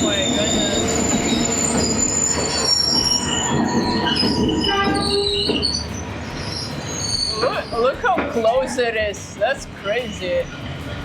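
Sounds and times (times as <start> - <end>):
high-pitched wheel squeal: 0.0 - 8.0
train wheels rumbling on rail: 0.0 - 11.0.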